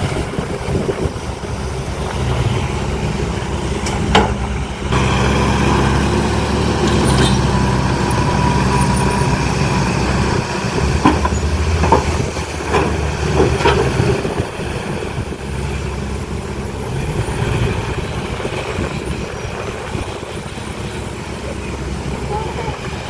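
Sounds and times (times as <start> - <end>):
diesel engine running: 0.0 - 23.0
metallic knocks and clanks: 3.8 - 4.6, 10.9 - 14.4.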